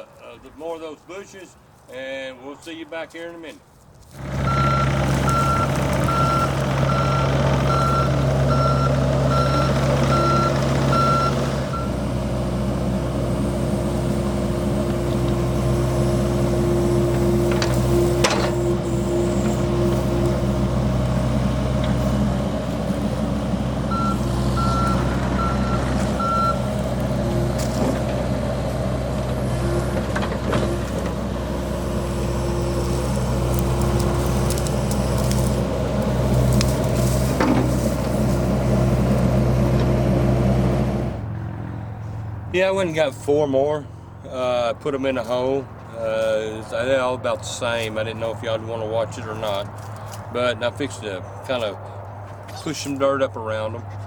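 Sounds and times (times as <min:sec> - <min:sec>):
excavator diesel engine running: 0:04.2 - 0:54.0
travel alarm beeping: 0:04.4 - 0:12.0, 0:23.9 - 0:26.7.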